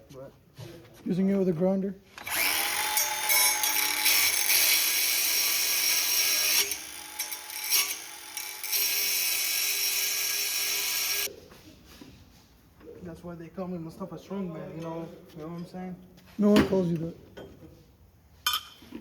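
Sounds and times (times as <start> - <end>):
angle grinder grinding metal: 2.2 - 11.3.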